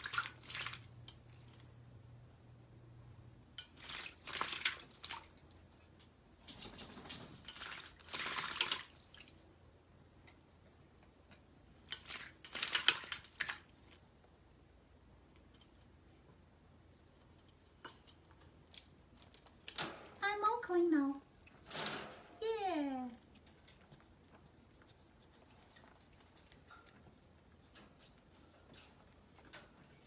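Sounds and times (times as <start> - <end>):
parrot splashing water: 0.0 - 1.8, 3.6 - 9.8, 11.7 - 14.1.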